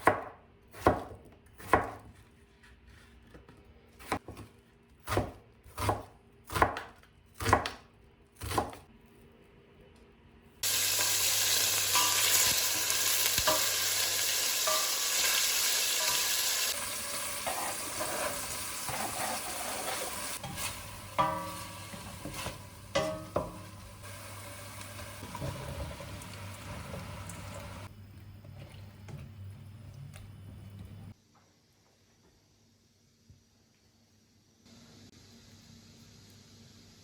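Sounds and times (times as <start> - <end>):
food sizzling in a pan: 10.6 - 27.9
utensil scraping and clinking pan: 14.6 - 15.3, 17.4 - 23.7.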